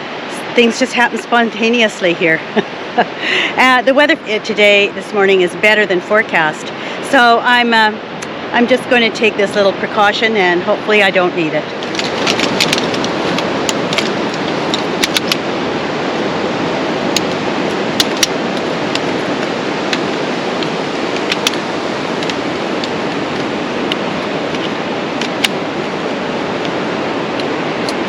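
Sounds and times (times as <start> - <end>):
ocean surf rushing: 0.0 - 28.0
camping gear clicking and rattling: 11.8 - 15.5, 17.1 - 28.0.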